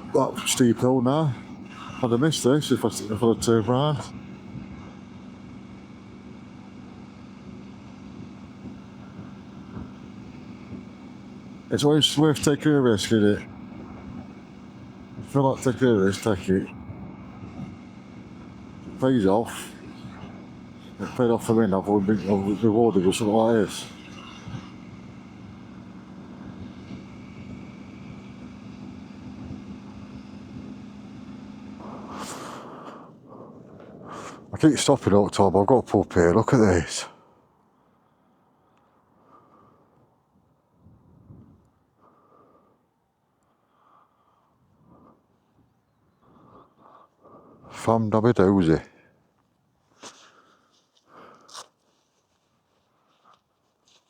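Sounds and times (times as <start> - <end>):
engine idling: 0.0 - 40.0, 43.4 - 54.0
wind on microphone: 40.8 - 41.7.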